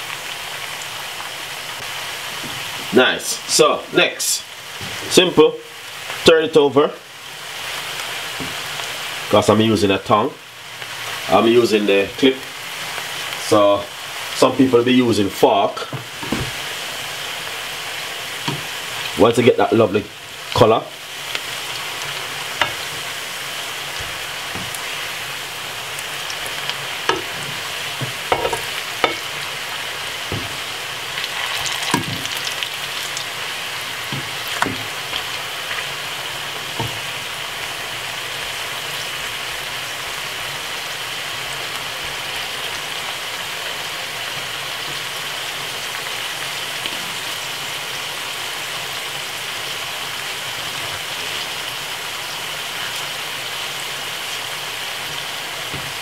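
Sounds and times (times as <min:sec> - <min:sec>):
plantain sizzling in oil: 0:00.0 - 0:56.0
metal tongs tapping pan: 0:22.6 - 0:22.9, 0:27.0 - 0:29.3.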